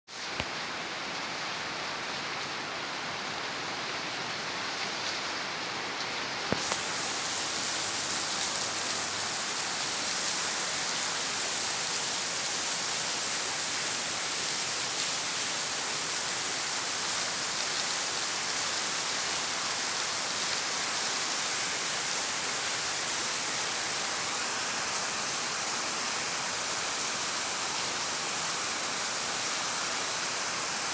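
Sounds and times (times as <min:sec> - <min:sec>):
heavy rain falling: 0:06.4 - 0:30.9.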